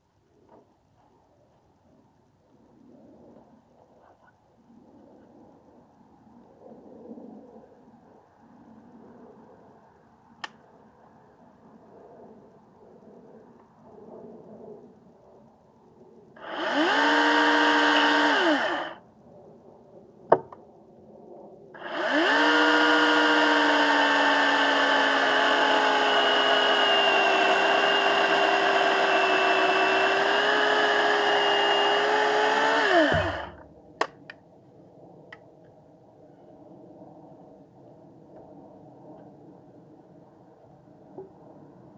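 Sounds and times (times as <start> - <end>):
electric chainsaw motor whine: 16.4 - 19.0, 21.8 - 33.7.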